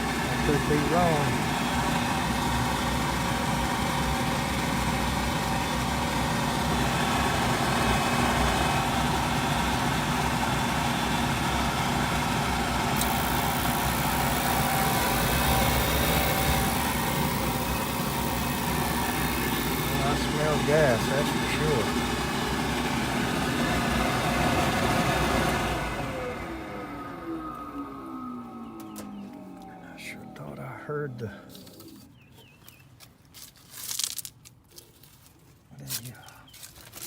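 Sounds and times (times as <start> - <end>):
steady tones: 0.0 - 26.3
steady motor hum: 0.0 - 32.8.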